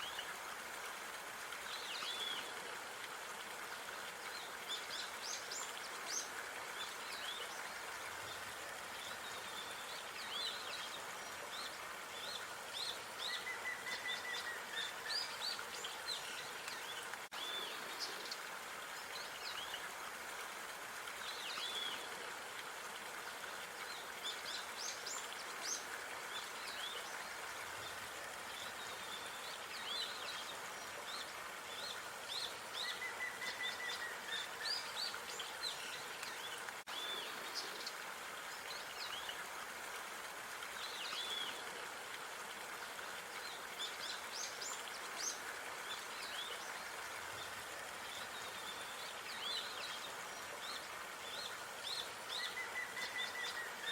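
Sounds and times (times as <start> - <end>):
background hiss: 0.0 - 53.9.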